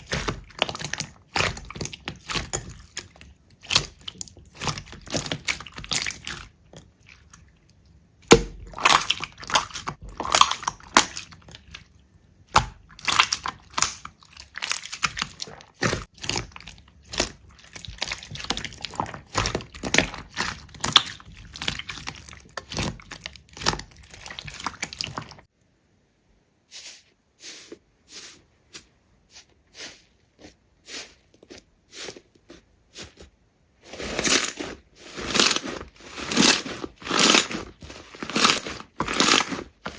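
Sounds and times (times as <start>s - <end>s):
slime popping and squishing: 0.0s - 7.4s, 8.2s - 11.9s, 12.5s - 25.5s, 34.0s - 39.9s.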